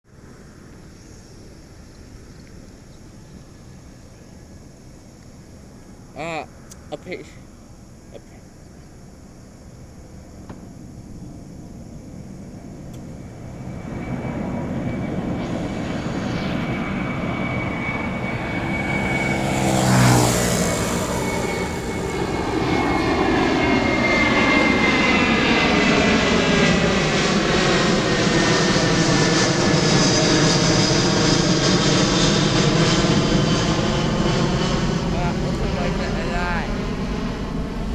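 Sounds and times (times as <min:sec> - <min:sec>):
jet engines roaring at takeoff: 0:00.1 - 0:37.9
high jet whine: 0:09.2 - 0:37.9.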